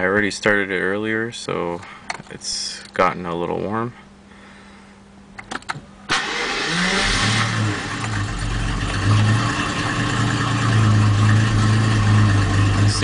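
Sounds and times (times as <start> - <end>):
car engine starting and idling: 5.4 - 13.0.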